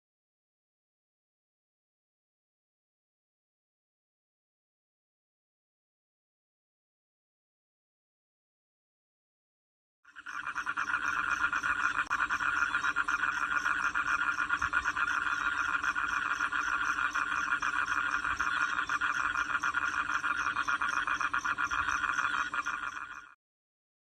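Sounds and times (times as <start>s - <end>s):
rapid pulsing animal calls: 10.1s - 23.4s.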